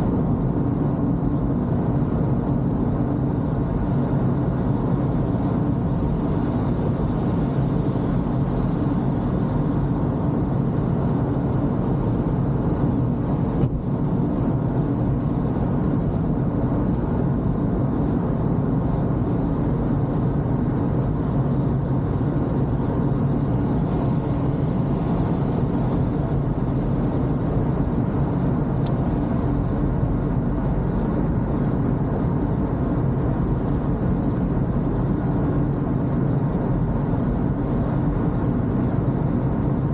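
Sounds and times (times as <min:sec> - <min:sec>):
car engine and road noise: 0:00.0 - 0:39.9
click: 0:28.8 - 0:29.0.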